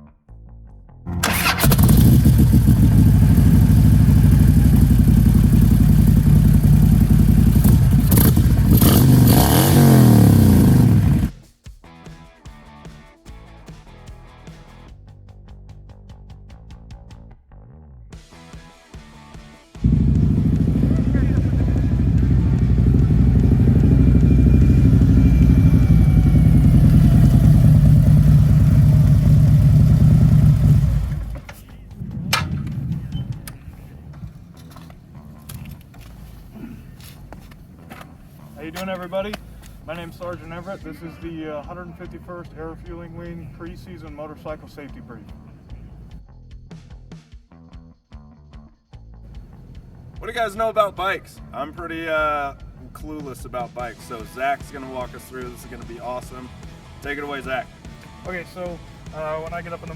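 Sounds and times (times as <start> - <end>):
motorcycle engine revving: 1.1 - 11.3, 19.8 - 46.2, 49.3 - 50.3, 53.6 - 59.9.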